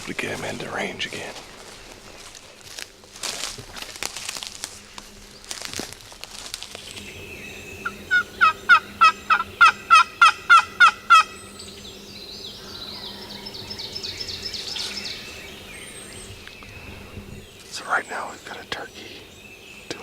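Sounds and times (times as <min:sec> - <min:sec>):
rapid rolling turkey call: 0:07.8 - 0:11.4
turkey yelping: 0:08.1 - 0:11.3.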